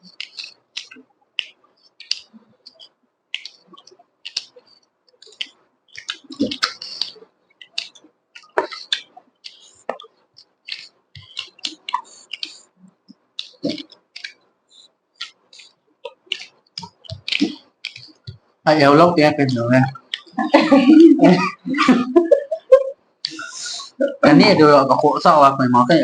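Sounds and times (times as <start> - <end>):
wet chewing and lip smacks: 0.1 - 18.5.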